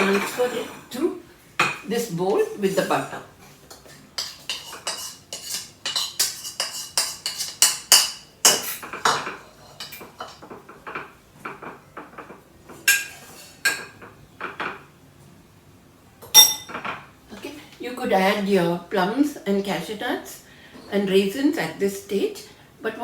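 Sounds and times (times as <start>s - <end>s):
metal spoon clinking against bowl: 16.2s - 16.9s.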